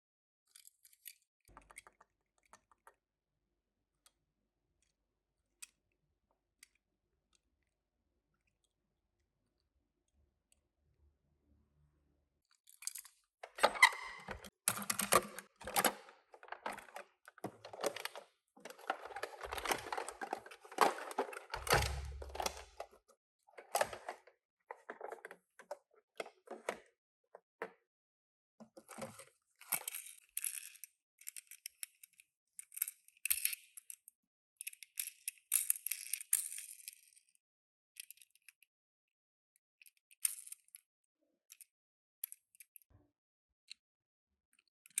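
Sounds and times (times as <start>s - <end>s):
toy cars clicking and clinking: 0.5s - 3.0s, 29.6s - 37.4s, 39.8s - 40.8s
packaging rustling and tearing: 14.8s - 22.7s.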